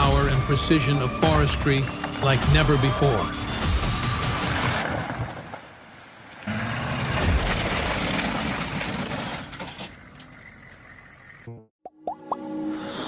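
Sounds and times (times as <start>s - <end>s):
forestry machine working: 0.0s - 4.7s, 6.4s - 10.8s.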